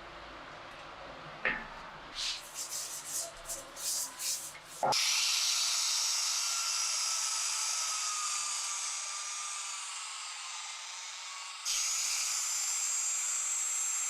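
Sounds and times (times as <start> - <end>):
hand sanding strokes: 2.2 - 5.0
small power tool whining: 4.9 - 14.0.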